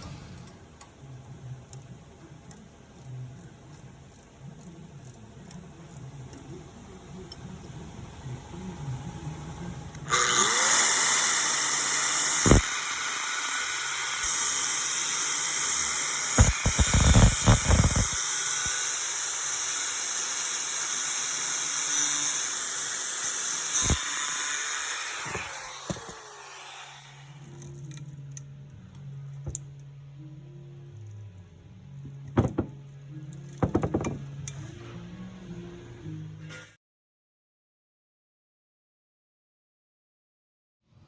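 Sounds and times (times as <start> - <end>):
angle grinder grinding metal: 10.1 - 27.9
sharp knocks: 32.4 - 32.8, 33.6 - 34.2.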